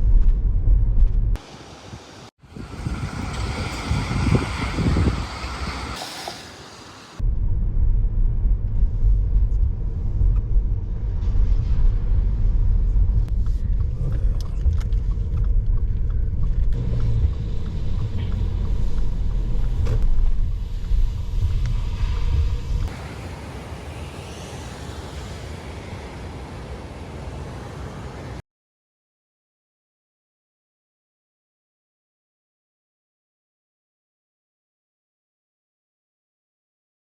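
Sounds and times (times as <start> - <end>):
wind-like noise: 0.0 - 28.4
car road rumble from cabin: 2.5 - 23.2.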